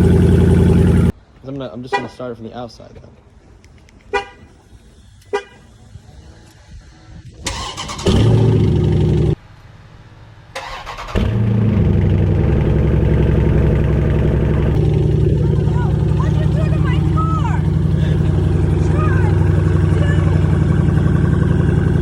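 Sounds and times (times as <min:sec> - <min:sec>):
loud engine starting and idling: 0:00.0 - 0:01.1, 0:07.3 - 0:09.4, 0:10.5 - 0:22.0
car horn chirps: 0:04.1 - 0:05.8.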